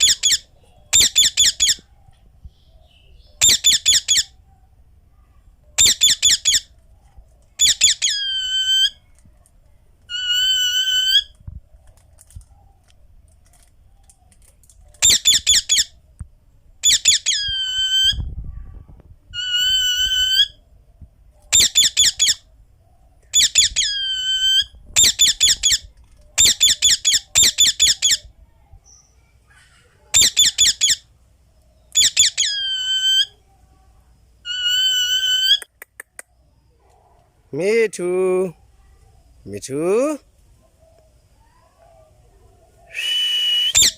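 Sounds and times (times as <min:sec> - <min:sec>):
parakeet screeching: 0:00.0 - 0:00.4, 0:01.0 - 0:01.8, 0:03.4 - 0:04.3, 0:05.8 - 0:06.7, 0:07.6 - 0:09.0, 0:10.1 - 0:11.3, 0:15.0 - 0:15.9, 0:16.8 - 0:18.2, 0:19.4 - 0:20.6, 0:21.5 - 0:22.4, 0:23.4 - 0:25.8, 0:26.4 - 0:28.2, 0:30.1 - 0:31.0, 0:32.0 - 0:33.3, 0:34.5 - 0:35.6.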